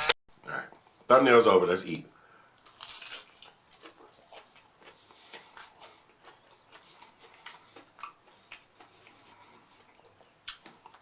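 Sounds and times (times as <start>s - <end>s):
crunchy chewing: 2.6s - 11.0s.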